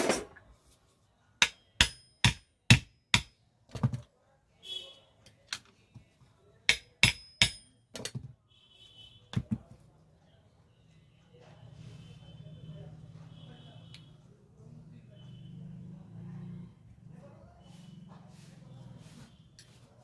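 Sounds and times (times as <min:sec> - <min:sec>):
hammer striking metal: 0:01.4 - 0:03.4, 0:06.7 - 0:08.2.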